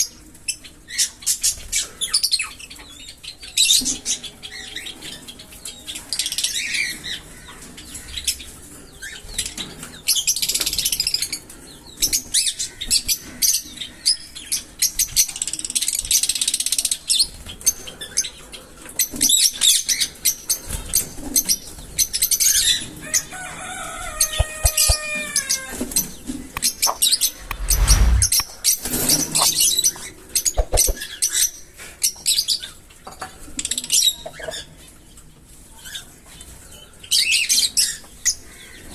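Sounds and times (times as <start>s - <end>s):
low flutter or thump: 27.4s - 28.5s.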